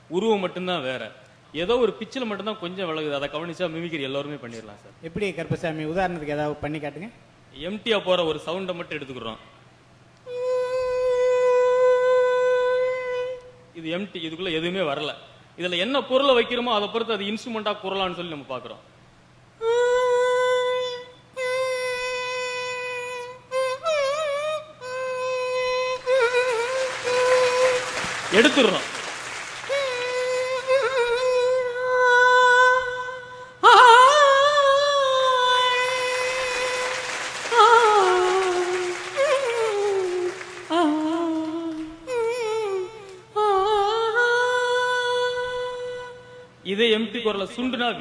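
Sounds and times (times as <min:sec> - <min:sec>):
person humming a wordless tone: 0:10.2 - 0:13.8, 0:19.6 - 0:28.4, 0:29.6 - 0:46.6
person singing steady note: 0:29.6 - 0:46.5.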